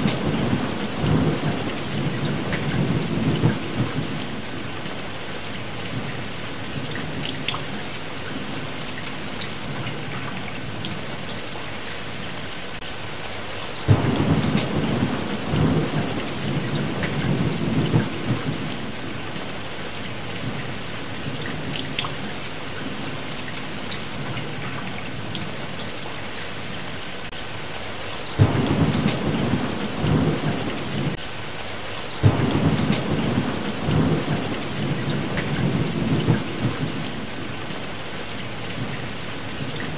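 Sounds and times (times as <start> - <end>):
low thunder rolls: 0.0 - 4.2, 13.9 - 19.0, 28.4 - 31.2, 32.2 - 37.3
heavy rain: 0.0 - 39.9.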